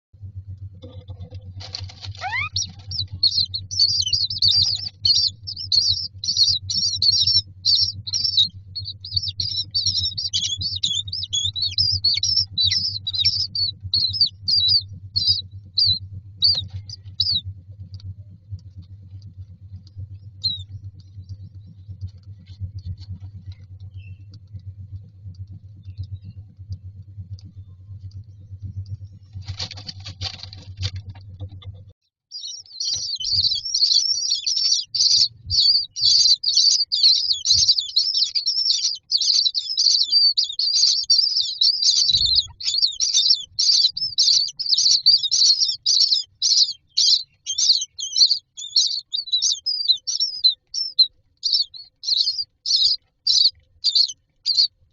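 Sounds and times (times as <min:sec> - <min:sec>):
low steady hum: 0:00.2 - 0:54.9
bird chicks begging chirps: 0:00.9 - 0:17.4, 0:19.9 - 0:24.4, 0:32.3 - 0:54.7.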